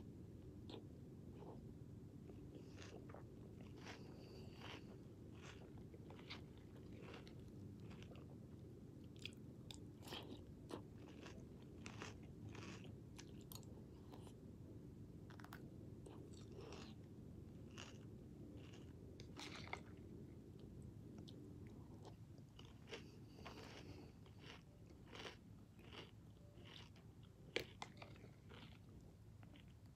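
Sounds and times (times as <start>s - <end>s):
person crunching cereal: 2.3s - 8.3s, 9.2s - 14.3s, 15.3s - 17.0s, 17.7s - 20.0s, 21.9s - 29.7s.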